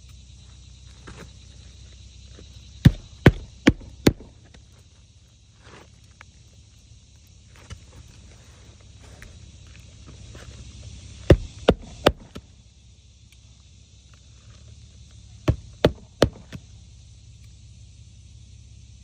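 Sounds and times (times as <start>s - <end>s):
steady low hum: 0.0s - 19.0s
hammer striking roofing nails: 2.8s - 4.3s, 11.3s - 12.4s, 15.4s - 16.6s.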